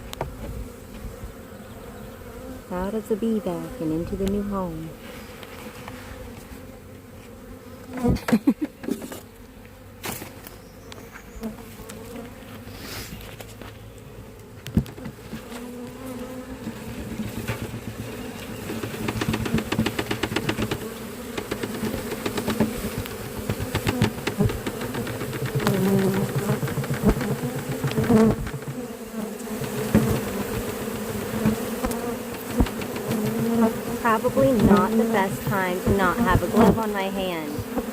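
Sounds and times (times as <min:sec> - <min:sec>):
bees buzzing: 0:00.0 - 0:37.9
bees tapping on camera: 0:02.8 - 0:06.5, 0:14.3 - 0:37.9
loud knocks: 0:18.7 - 0:28.9, 0:32.2 - 0:33.4.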